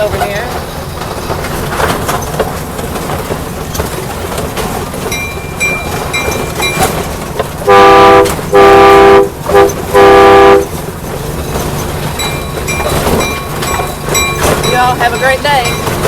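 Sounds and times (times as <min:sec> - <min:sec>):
steady train rumble: 0:00.0 - 0:16.0
train bell ringing: 0:05.0 - 0:07.2, 0:11.8 - 0:16.0
locomotive horn blasts: 0:07.6 - 0:10.8.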